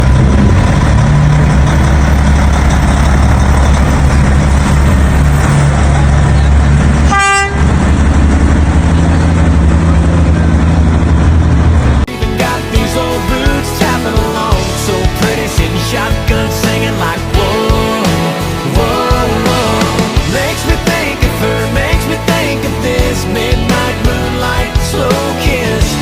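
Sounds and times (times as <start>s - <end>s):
truck diesel engine running: 0.0s - 26.0s
truck horn toot: 7.0s - 7.8s
music: 12.1s - 26.0s.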